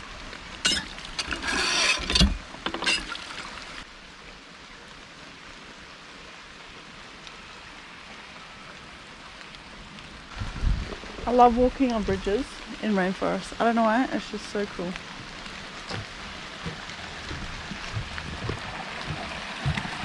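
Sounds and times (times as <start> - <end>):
rain falling: 0.0 - 20.0
knocks and rustles: 15.7 - 20.0.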